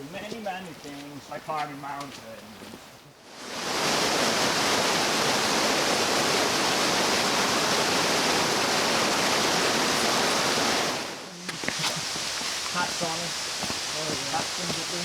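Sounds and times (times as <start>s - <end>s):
rushing water: 3.2s - 15.0s.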